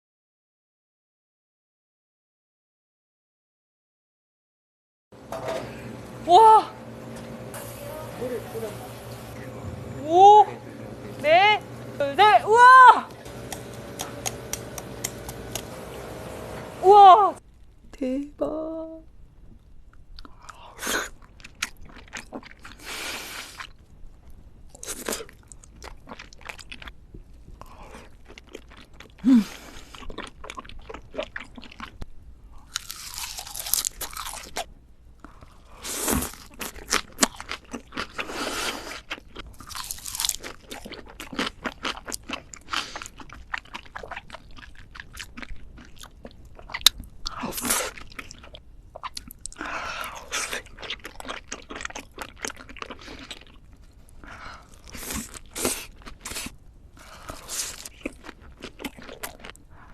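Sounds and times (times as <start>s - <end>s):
wet chewing and mouth clicks: 13.3s - 15.7s, 19.5s - 35.6s, 36.2s - 59.9s
crunchy biting: 13.3s - 15.8s, 32.6s - 34.7s, 35.3s - 53.6s.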